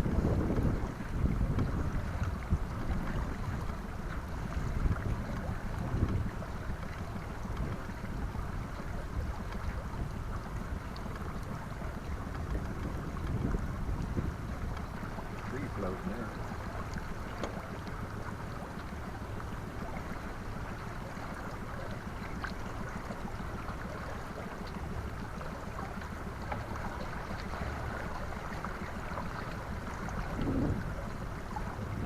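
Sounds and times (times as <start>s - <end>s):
wind on microphone: 0.0s - 10.8s, 11.5s - 16.3s, 29.0s - 32.0s.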